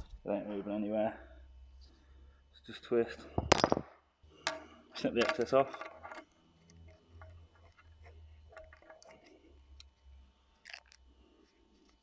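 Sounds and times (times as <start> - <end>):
low steady hum: 0.0 - 12.0
hand tools clicking on wire: 5.2 - 10.0, 10.6 - 11.0.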